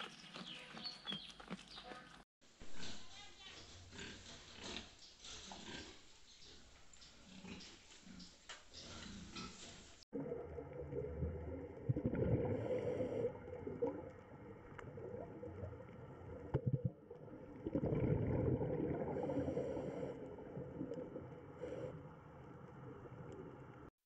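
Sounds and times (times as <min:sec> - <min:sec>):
underwater rush and gurgle: 0:10.1 - 0:23.9.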